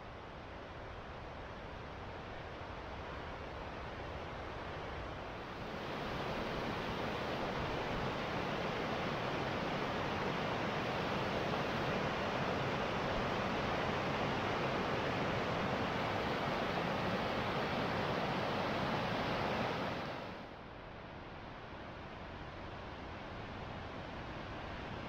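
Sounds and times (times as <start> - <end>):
rushing stream water: 5.5 - 20.5.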